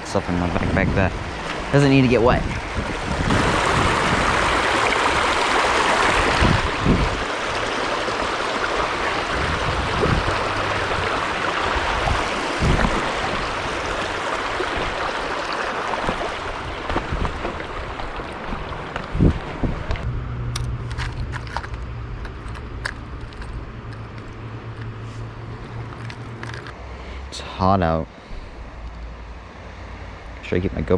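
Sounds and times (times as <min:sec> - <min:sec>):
stream rushing over rocks: 0:01.1 - 0:19.3.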